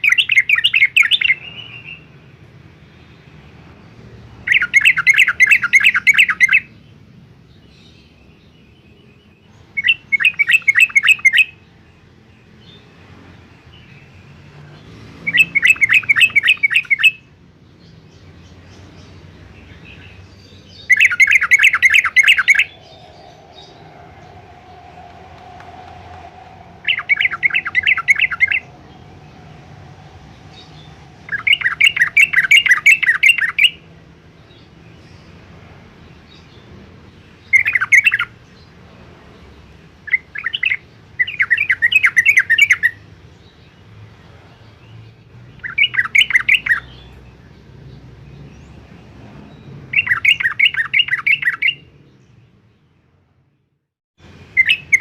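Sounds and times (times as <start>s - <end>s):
bird singing bubbling notes: 20.9s - 33.8s.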